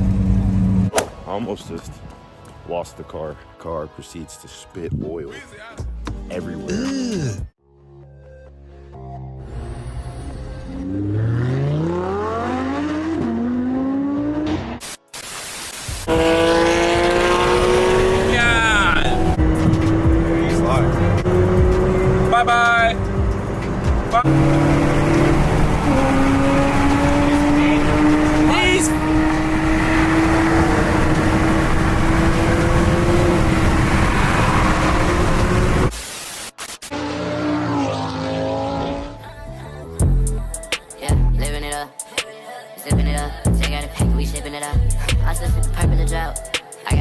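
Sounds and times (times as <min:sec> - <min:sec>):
car engine accelerating: 0:00.0 - 0:00.9, 0:10.5 - 0:14.8, 0:16.1 - 0:35.9, 0:36.9 - 0:40.2
road and wind rumble: 0:00.0 - 0:02.7, 0:16.1 - 0:36.0
loud steady engine note: 0:16.1 - 0:34.0.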